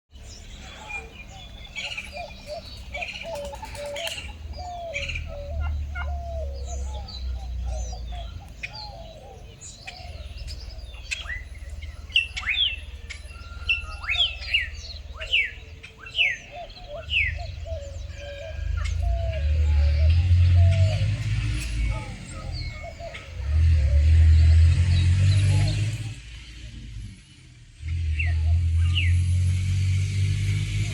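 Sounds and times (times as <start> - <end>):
turkeys calling: 0.2 - 26.3.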